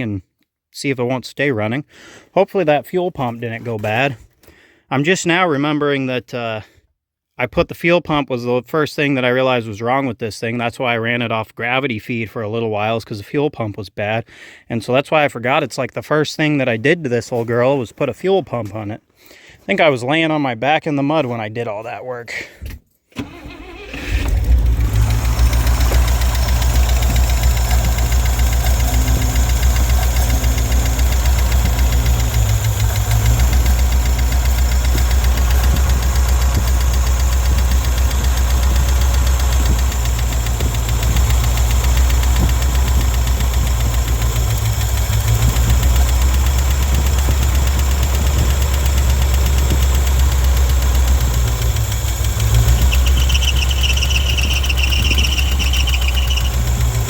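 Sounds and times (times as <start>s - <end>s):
truck engine starting and running: 23.1s - 57.0s
high squeal: 52.6s - 57.0s.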